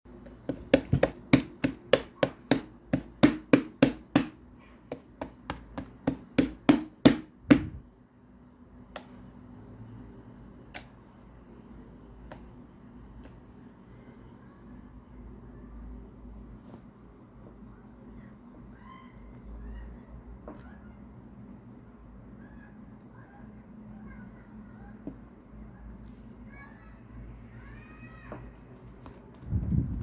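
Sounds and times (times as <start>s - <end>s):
sharp knocks: 0.5s - 7.8s.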